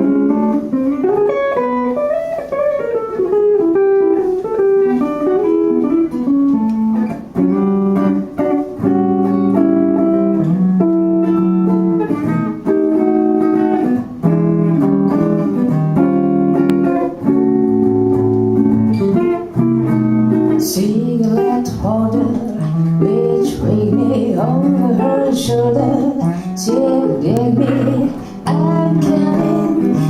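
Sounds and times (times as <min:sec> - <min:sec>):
guitar playing melody and chords: 0:00.0 - 0:30.0.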